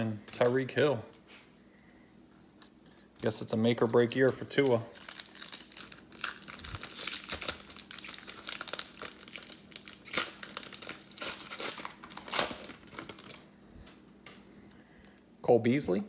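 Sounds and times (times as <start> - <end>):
plastic wrapper crinkling and ripping: 3.8 - 14.4.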